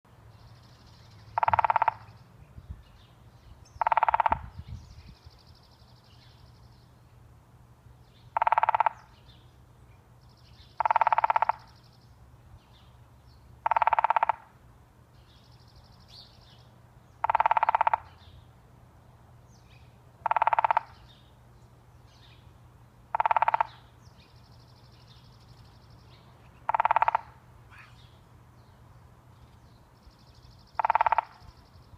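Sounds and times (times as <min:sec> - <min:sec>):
woodpecker drumming on tree: 0:01.3 - 0:02.1, 0:03.8 - 0:04.6, 0:08.3 - 0:09.2, 0:10.7 - 0:11.9, 0:13.6 - 0:14.6, 0:17.2 - 0:18.2, 0:20.2 - 0:21.2, 0:23.0 - 0:23.9, 0:26.6 - 0:27.4, 0:30.6 - 0:31.6.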